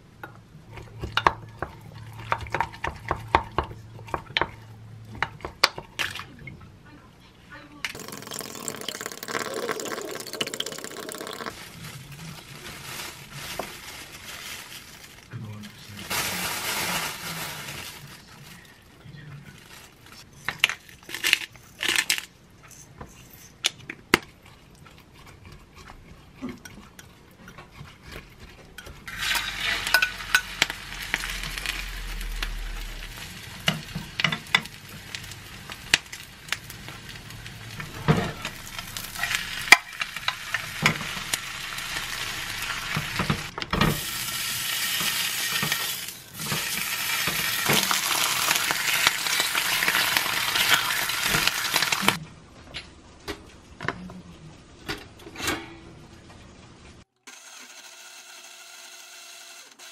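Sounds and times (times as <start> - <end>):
food sizzling in a pan: 16.0 - 18.1, 29.1 - 52.2
metal spoon scraping and tapping: 26.6 - 30.6.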